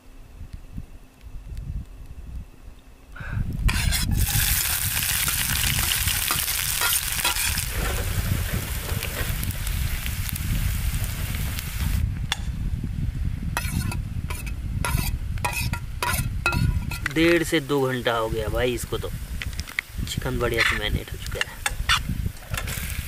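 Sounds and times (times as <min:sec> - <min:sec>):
food sizzling in hot oil: 0:03.7 - 0:12.0, 0:13.6 - 0:19.0.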